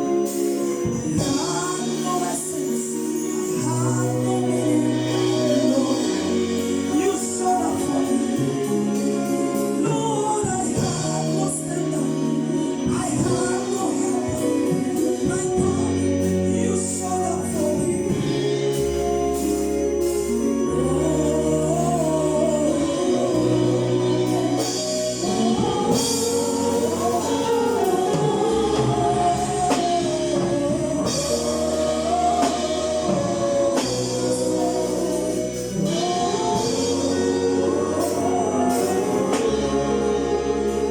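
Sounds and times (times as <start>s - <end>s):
bass line: 0.0s - 40.9s
gospel choir singing: 0.0s - 40.9s.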